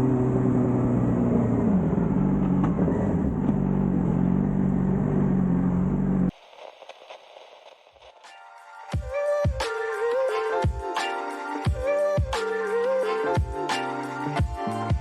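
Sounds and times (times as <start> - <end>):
motorcycle engine at speed: 0.0 - 6.3.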